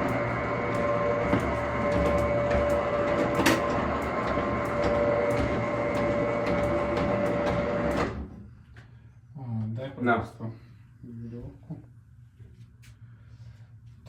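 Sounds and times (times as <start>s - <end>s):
roller shutter motor humming: 0.0s - 8.3s.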